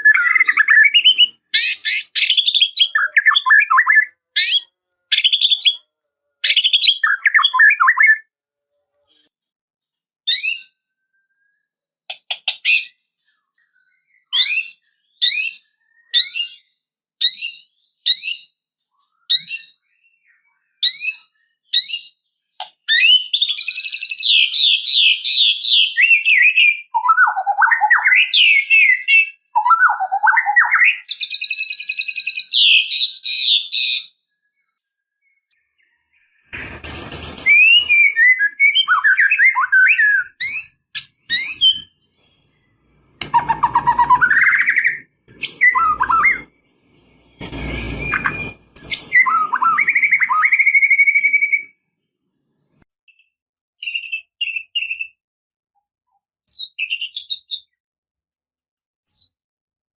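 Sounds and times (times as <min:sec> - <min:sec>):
songbird whistling and trilling: 0:00.0 - 0:08.3, 0:10.3 - 0:13.0, 0:13.7 - 0:34.2, 0:37.5 - 0:42.4, 0:43.2 - 0:46.6, 0:47.8 - 0:51.8, 0:53.1 - 0:55.2, 0:56.4 - 0:57.8, 0:59.0 - 0:59.4.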